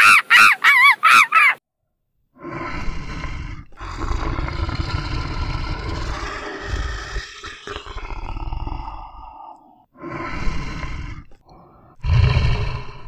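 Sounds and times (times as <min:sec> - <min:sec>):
baboon calls: 0:00.0 - 0:01.6
bear growling: 0:02.4 - 0:13.0.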